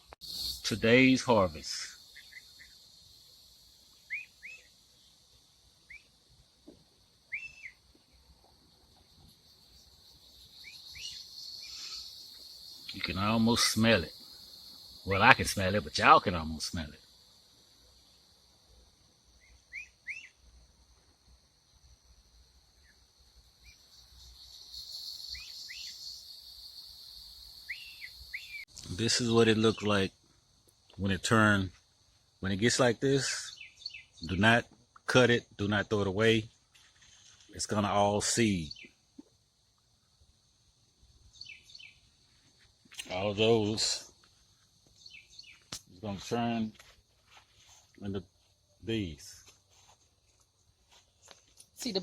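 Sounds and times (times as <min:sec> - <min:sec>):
faint bird chirps: 0:00.0 - 0:21.1, 0:22.7 - 0:30.2, 0:32.4 - 0:34.6, 0:35.7 - 0:40.0, 0:41.2 - 0:46.7
crickets chirping: 0:00.0 - 0:52.0.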